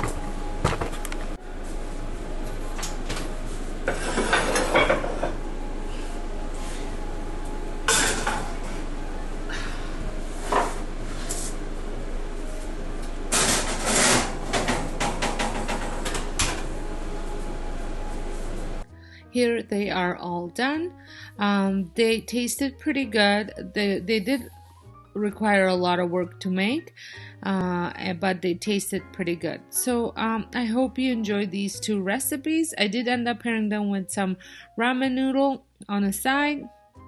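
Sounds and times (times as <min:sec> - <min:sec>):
steady background hum: 0:00.0 - 0:19.2
pans and utensils clattering: 0:03.9 - 0:05.4, 0:07.9 - 0:08.6.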